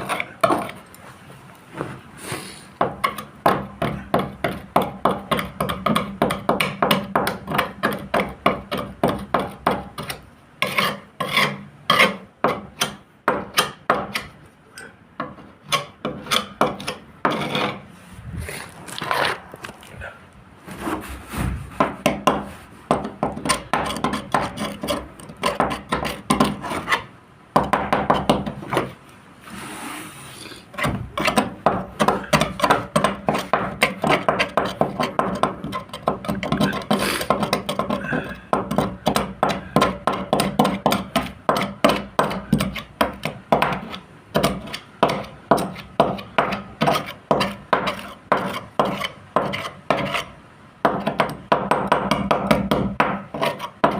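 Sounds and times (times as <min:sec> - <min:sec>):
hand sanding boat hull: 0:20.7 - 0:27.1, 0:29.4 - 0:50.3, 0:52.3 - 0:53.9.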